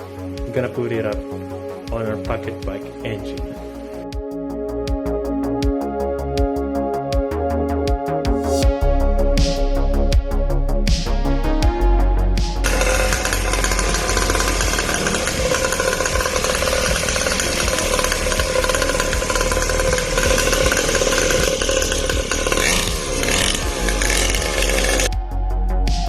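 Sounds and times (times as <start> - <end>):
two-stroke engine buzzing: 12.6 - 25.1.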